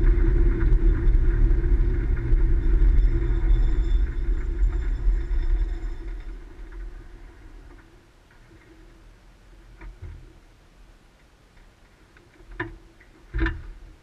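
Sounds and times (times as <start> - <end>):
vehicle rumble with high whine: 0.0 - 7.9.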